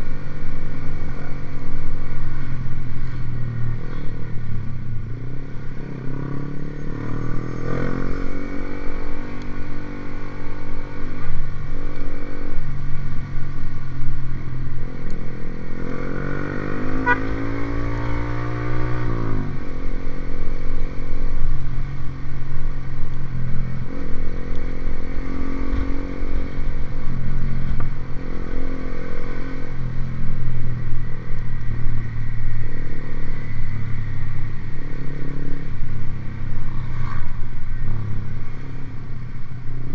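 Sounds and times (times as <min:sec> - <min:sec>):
motorcycle engine revving: 0:04.9 - 0:11.4, 0:14.8 - 0:19.7.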